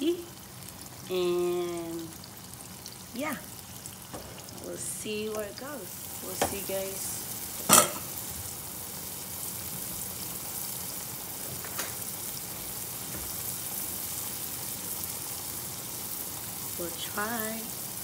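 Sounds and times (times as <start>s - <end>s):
batter sizzling in oil: 0.0s - 18.0s.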